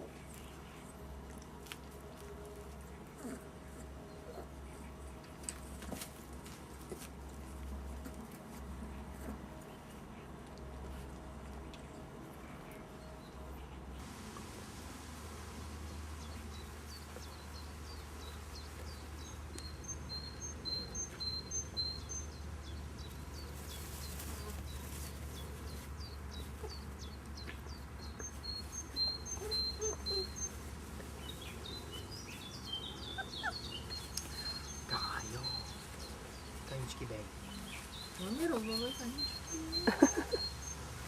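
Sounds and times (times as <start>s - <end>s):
small bird chirping: 16.3s - 40.9s.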